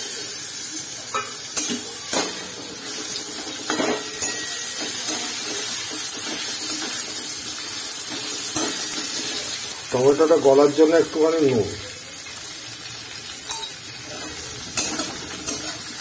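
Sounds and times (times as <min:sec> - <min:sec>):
vegetables sizzling in oil: 0:00.0 - 0:16.0
metal spatula scraping a pan: 0:01.1 - 0:09.7, 0:13.5 - 0:16.0.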